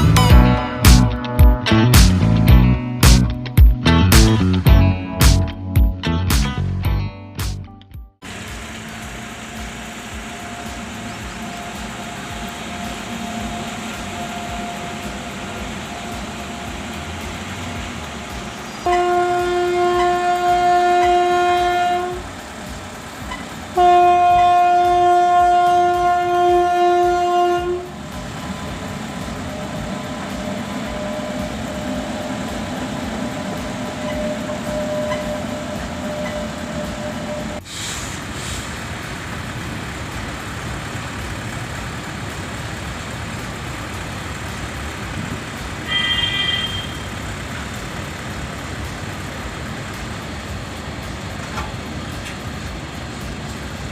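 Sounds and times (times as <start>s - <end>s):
train running: 0.0s - 6.8s, 8.2s - 53.9s
high-pitched horn toot: 18.8s - 22.2s, 45.9s - 47.2s
train horn blast: 18.8s - 22.4s, 23.3s - 28.0s, 33.4s - 37.6s, 45.9s - 47.2s.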